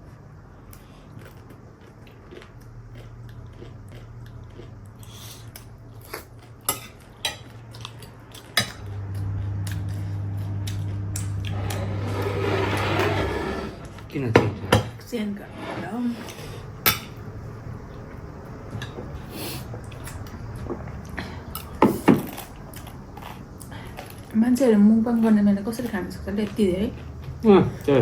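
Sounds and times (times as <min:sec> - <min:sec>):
steady low hum: 0:00.0 - 0:28.0
cutlery clinking on plates: 0:06.7 - 0:08.8.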